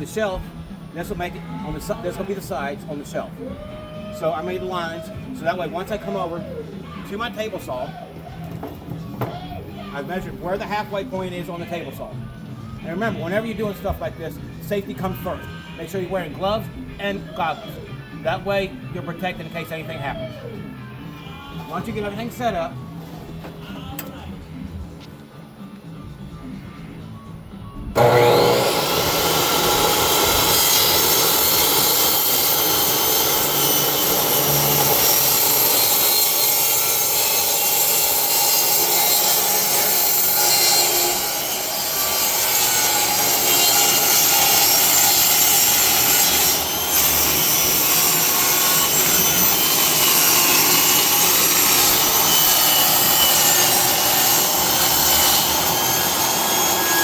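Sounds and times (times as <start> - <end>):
table saw cutting wood: 28.0 - 57.0.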